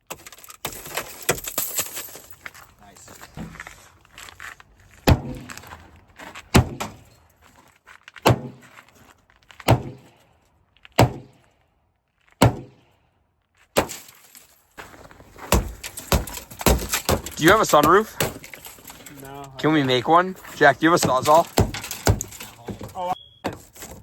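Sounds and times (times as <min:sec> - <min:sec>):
heavy blows on truck body: 0:05.0 - 0:05.5, 0:06.5 - 0:07.0, 0:08.3 - 0:08.6, 0:09.7 - 0:10.1, 0:11.0 - 0:11.4, 0:12.4 - 0:12.8, 0:15.4 - 0:18.5, 0:20.9 - 0:23.6.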